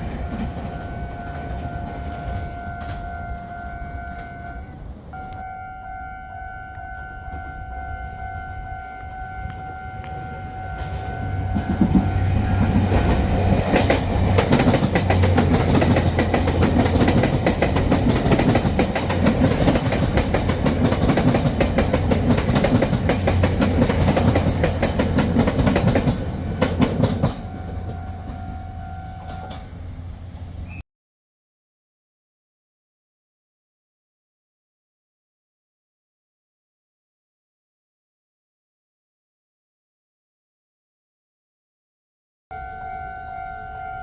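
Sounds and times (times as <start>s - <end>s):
train passing at speed: 0.0s - 30.8s.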